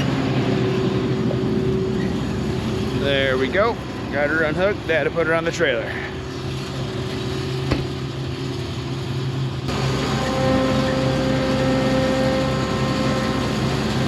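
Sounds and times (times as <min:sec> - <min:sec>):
diesel engine running: 0:00.0 - 0:14.0
sharp knock: 0:07.7 - 0:08.0.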